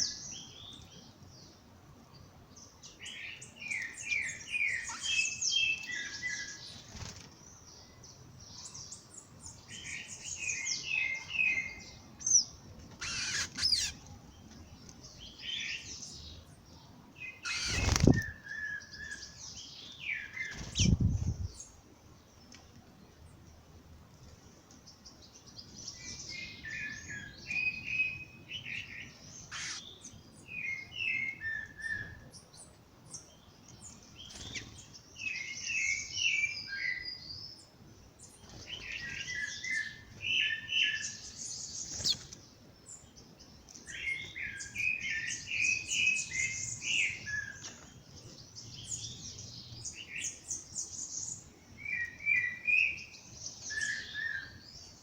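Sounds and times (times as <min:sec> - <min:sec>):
high bird chirps and trills: 0:07.8 - 0:14.1, 0:17.2 - 0:21.8, 0:25.6 - 0:37.6, 0:38.2 - 0:43.0.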